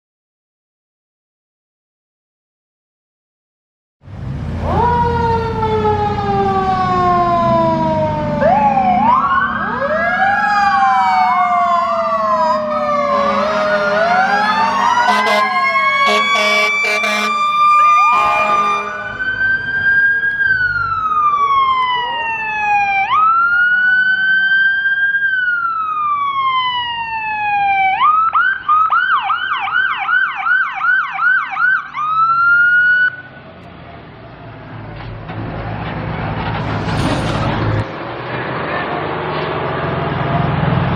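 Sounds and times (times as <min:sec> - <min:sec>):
fire truck siren wailing: 0:04.1 - 0:38.0
horn blasts: 0:13.1 - 0:19.3
low engine rumble: 0:33.4 - 0:40.9.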